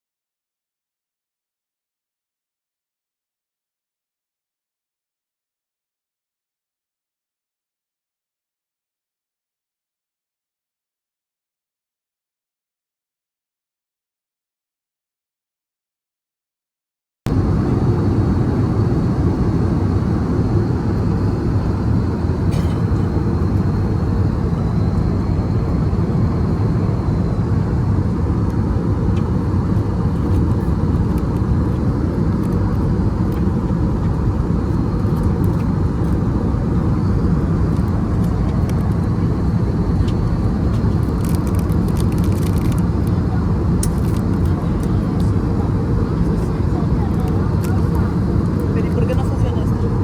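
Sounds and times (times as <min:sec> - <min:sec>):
airplane cabin engine rush: 0:17.3 - 0:50.0.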